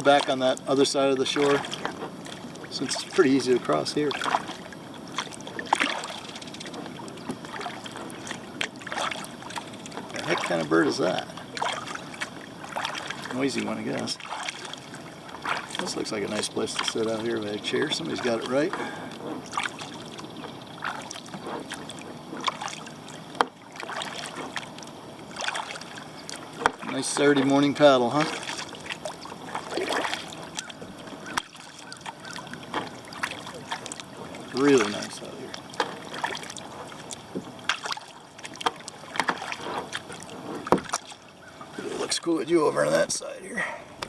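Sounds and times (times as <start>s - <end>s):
sharp water splashes: 0.0s - 42.2s
water dripping off paddle: 0.0s - 42.2s
paddle dipping through water: 0.0s - 44.0s.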